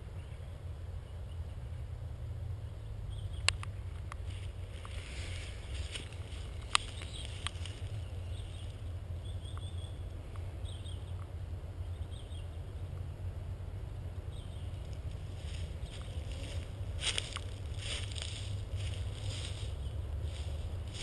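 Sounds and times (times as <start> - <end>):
birds chirping: 0.0 - 21.0
steady low rumble: 0.0 - 21.0
sharp clicks: 6.6 - 7.8.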